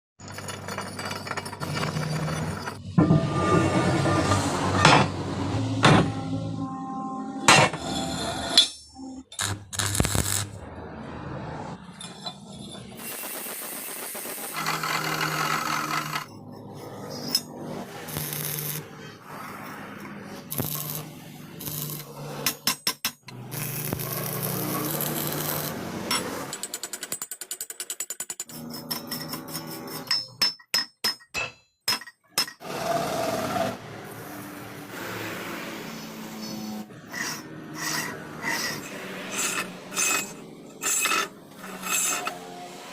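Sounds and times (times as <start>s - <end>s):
hand tool scraping on metal: 0.2s - 2.9s, 28.4s - 30.4s, 36.3s - 42.8s
metal rasping and scraping: 0.2s - 6.2s, 7.5s - 10.7s, 11.4s - 13.3s, 14.4s - 27.2s, 28.3s - 30.6s, 35.8s - 42.9s.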